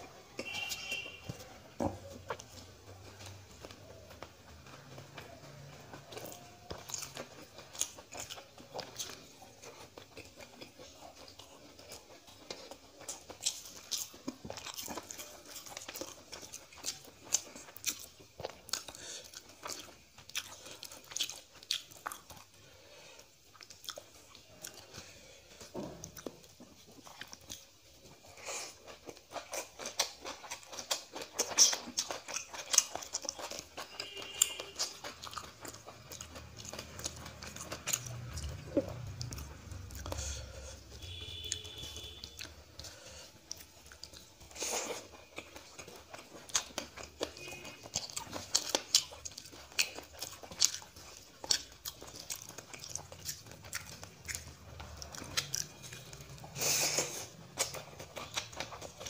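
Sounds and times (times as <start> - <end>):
person chewing food: 0.0 - 59.0
crunching: 23.1 - 59.0.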